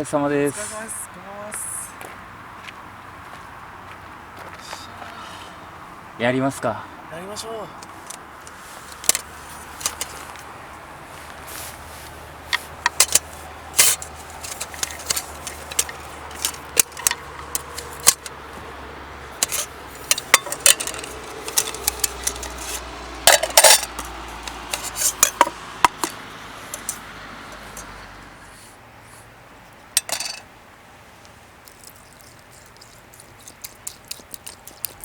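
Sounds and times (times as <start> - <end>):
metal cookware clinking and scraping: 12.8 - 18.3, 19.4 - 27.9, 30.0 - 30.4.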